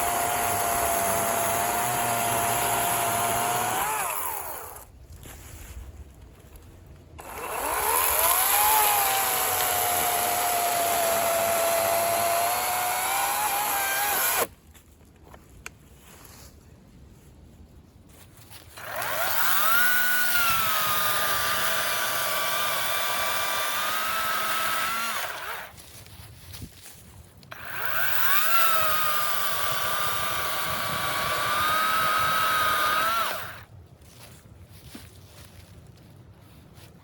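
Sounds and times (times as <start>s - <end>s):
electric chainsaw cutting log: 0.0s - 4.9s, 7.2s - 14.5s, 18.8s - 25.8s, 27.5s - 33.7s.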